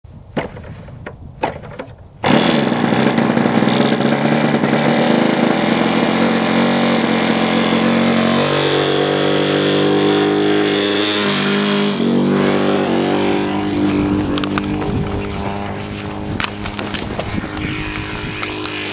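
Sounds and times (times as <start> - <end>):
model aircraft engine running: 2.2 - 9.0, 13.1 - 18.9.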